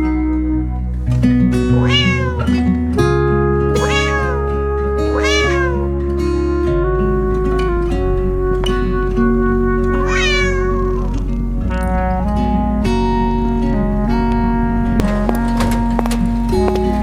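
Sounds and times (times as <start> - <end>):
background music with bass line: 0.0 - 17.0
cat meowing: 1.7 - 2.6, 3.7 - 6.0, 10.0 - 11.3.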